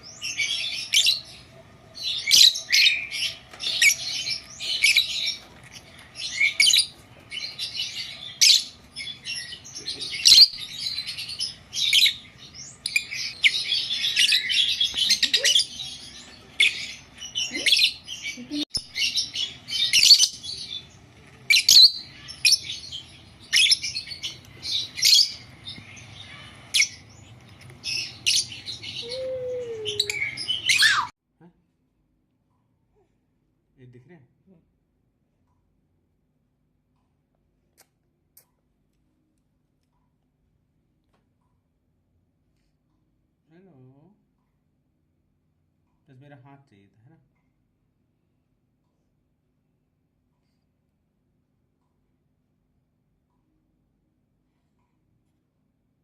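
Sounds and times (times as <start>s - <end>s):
birds chirping: 0.0s - 31.2s.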